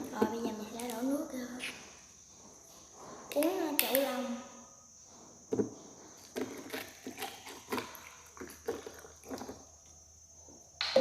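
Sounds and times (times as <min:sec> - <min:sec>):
person gulping water: 0:07.0 - 0:09.7.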